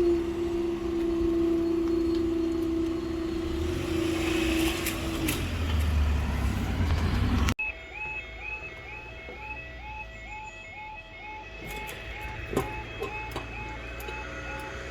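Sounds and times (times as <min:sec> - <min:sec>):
train rumbling: 0:00.0 - 0:07.6
level crossing alarm warbling: 0:07.6 - 0:14.9.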